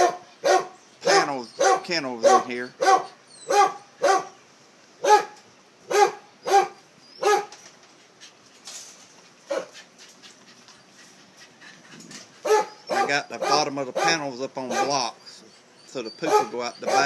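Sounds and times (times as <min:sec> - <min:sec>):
dog barking: 0:00.0 - 0:04.4, 0:05.0 - 0:07.5, 0:09.5 - 0:09.7, 0:12.4 - 0:15.0, 0:16.2 - 0:17.0.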